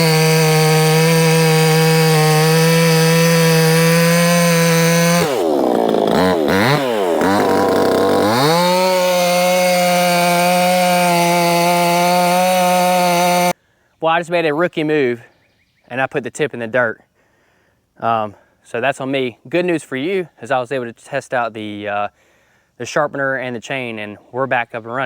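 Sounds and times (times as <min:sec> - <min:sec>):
chainsaw cutting log: 0:00.0 - 0:13.6.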